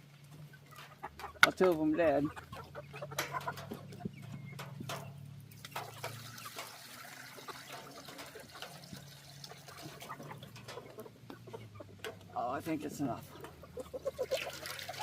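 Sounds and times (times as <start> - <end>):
water trickling into a bowl: 5.5 - 10.8, 14.1 - 15.0.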